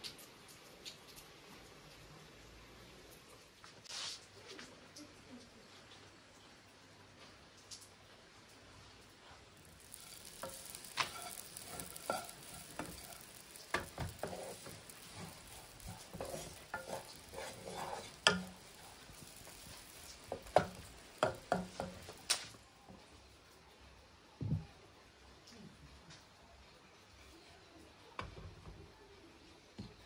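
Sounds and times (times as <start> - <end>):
berries sizzling in butter: 8.5 - 23.6
wooden spoon scraping a pan: 9.6 - 22.5
spoon knocking against pan: 10.0 - 22.2.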